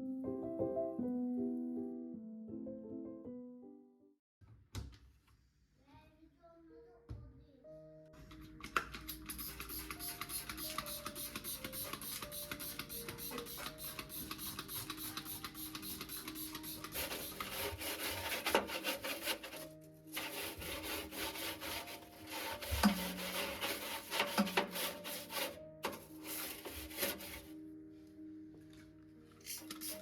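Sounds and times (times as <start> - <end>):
soft background music: 0.0 - 4.2, 6.0 - 30.0
scrubbing against a surface: 16.2 - 27.5.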